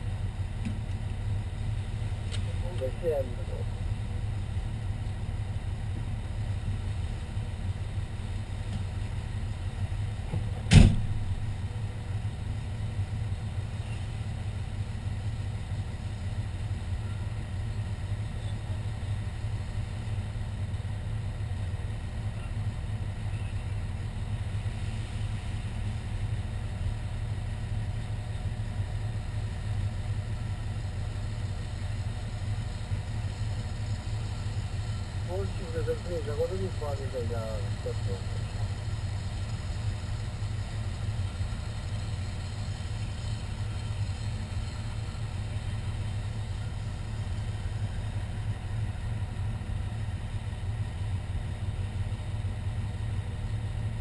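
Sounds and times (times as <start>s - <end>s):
fire engine running: 0.0s - 54.0s
sharp knock: 10.7s - 11.1s.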